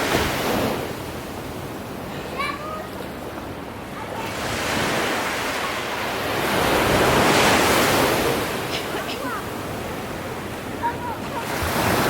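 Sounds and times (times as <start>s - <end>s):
ocean waves washing in: 0.0s - 12.0s.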